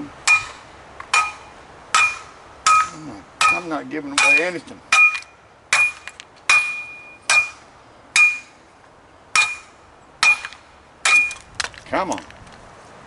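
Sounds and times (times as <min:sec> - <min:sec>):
hammer striking metal: 0:00.2 - 0:07.6, 0:08.2 - 0:08.6, 0:09.4 - 0:11.4.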